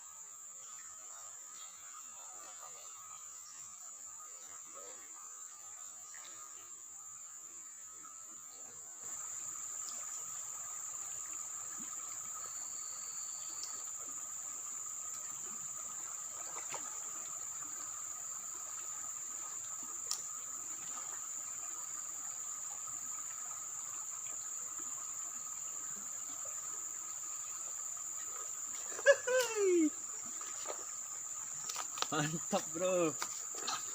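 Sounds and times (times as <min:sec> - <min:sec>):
insects chirring: 0:00.0 - 0:33.9.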